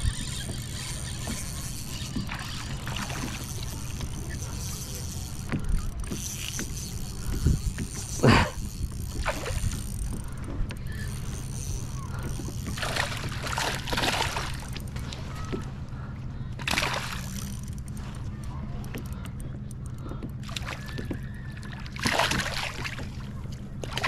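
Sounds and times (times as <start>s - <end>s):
steady low hum: 0.0s - 24.0s
water splashing around a kayak: 0.0s - 24.0s.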